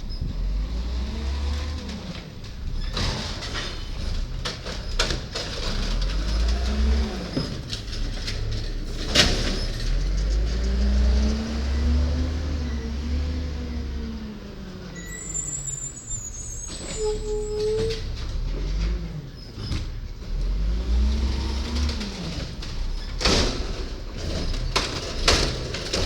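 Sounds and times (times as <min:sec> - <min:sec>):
garbage truck engine revving: 0:00.0 - 0:26.0
faint high squeal: 0:15.0 - 0:18.1.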